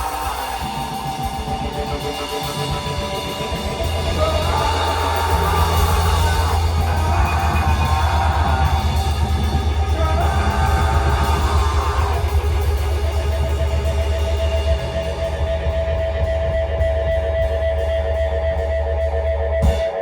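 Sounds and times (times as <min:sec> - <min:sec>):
rock band playing: 0:00.0 - 0:20.0.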